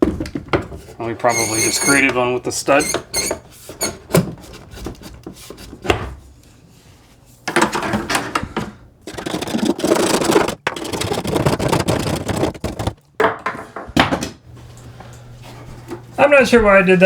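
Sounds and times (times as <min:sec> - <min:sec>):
rough scraping and rubbing: 0:01.1 - 0:05.8, 0:09.1 - 0:13.0.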